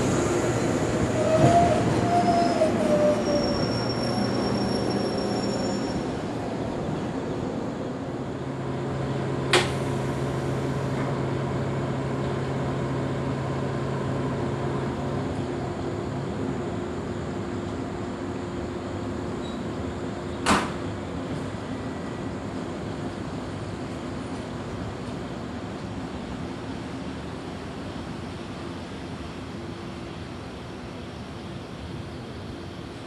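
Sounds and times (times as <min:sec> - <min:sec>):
standing train humming: 0:00.0 - 0:33.0
train brakes squealing: 0:00.2 - 0:06.3, 0:19.4 - 0:19.8.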